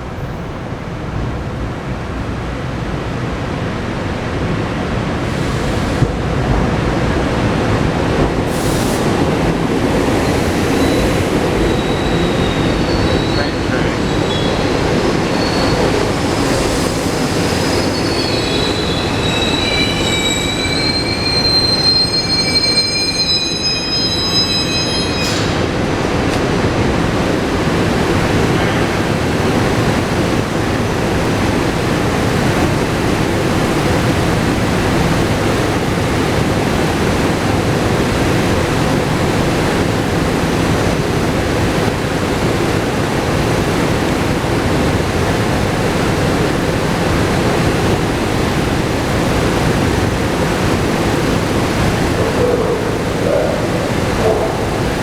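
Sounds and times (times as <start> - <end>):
train rail rumble: 0.0 - 55.0
train wheels squealing: 10.0 - 25.8.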